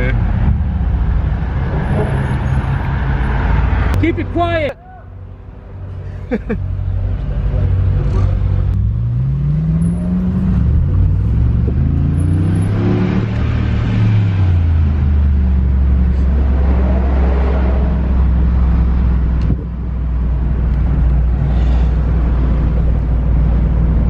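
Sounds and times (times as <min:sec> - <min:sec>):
sports car exhaust rumbling: 0:07.9 - 0:17.0.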